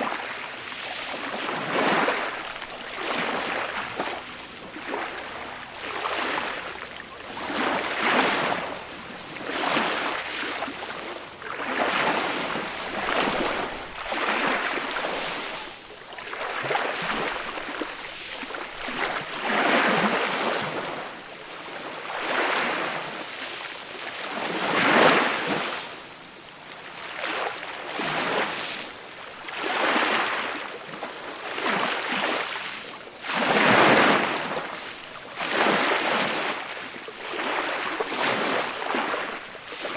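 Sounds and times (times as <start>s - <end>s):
small waves washing up a beach: 0.0s - 39.9s.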